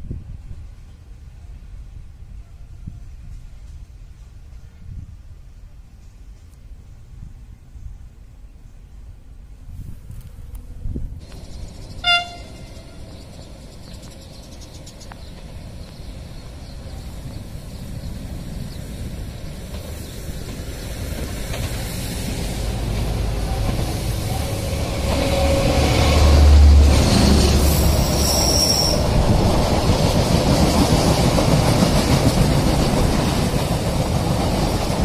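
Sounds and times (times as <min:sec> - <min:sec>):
diesel locomotive engine: 0:10.2 - 0:35.0
train wheels rumbling: 0:10.6 - 0:35.0
train horn toot: 0:12.0 - 0:13.1, 0:24.3 - 0:29.1.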